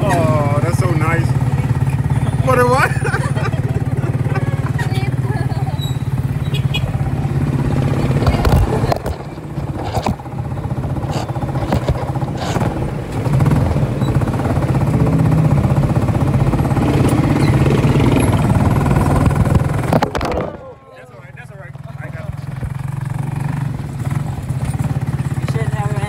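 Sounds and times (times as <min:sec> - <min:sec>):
motorcycle engine running: 0:00.0 - 0:26.0
knocks and rattles from ride: 0:01.0 - 0:20.5.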